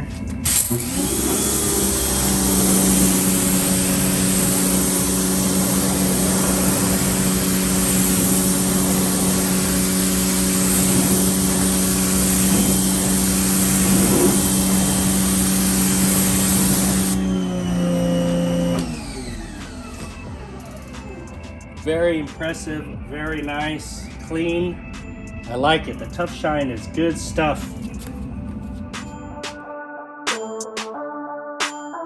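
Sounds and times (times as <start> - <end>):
pump motor humming: 0.0 - 21.6
water spray hissing: 0.5 - 18.8.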